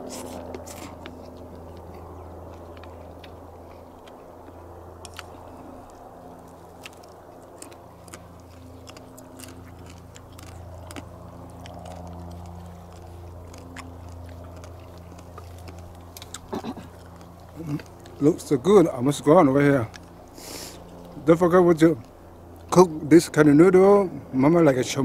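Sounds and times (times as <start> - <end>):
person chewing noodles: 0.0 - 18.2
steady low hum: 0.0 - 25.0.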